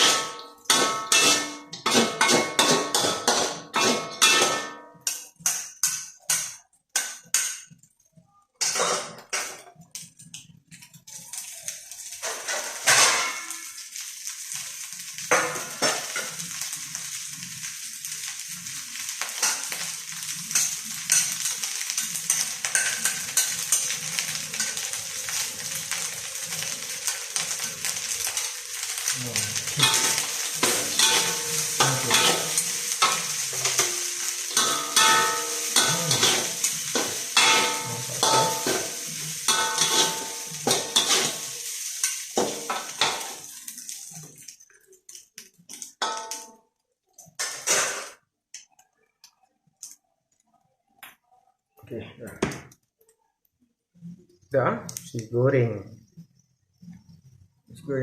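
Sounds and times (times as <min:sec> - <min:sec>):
spatula scraping pan: 0:00.0 - 0:06.4, 0:20.5 - 0:44.0
metal utensils clinking on dishes: 0:00.0 - 0:07.9, 0:08.6 - 0:09.9, 0:12.2 - 0:13.8, 0:19.4 - 0:46.6
food sizzling in frying pan: 0:00.0 - 0:50.4.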